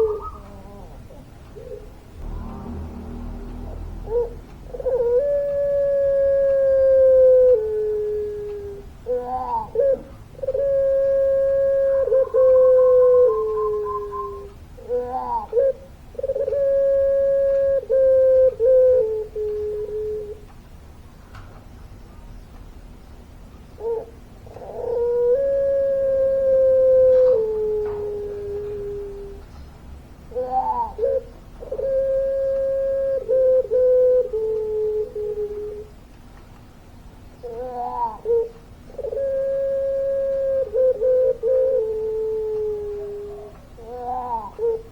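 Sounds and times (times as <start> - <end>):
dove cooing: 0.0 - 20.5, 23.8 - 29.6, 30.3 - 36.0, 37.4 - 44.9.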